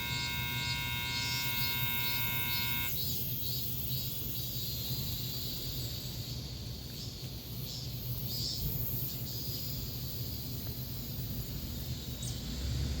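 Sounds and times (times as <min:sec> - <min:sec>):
steady low hum: 0:00.0 - 0:03.0
faint high chirping: 0:00.0 - 0:03.1.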